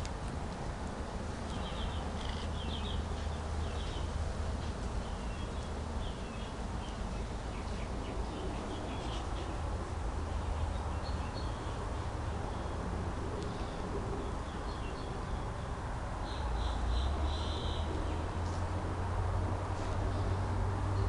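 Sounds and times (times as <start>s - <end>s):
small birds chirping: 1.4s - 18.8s.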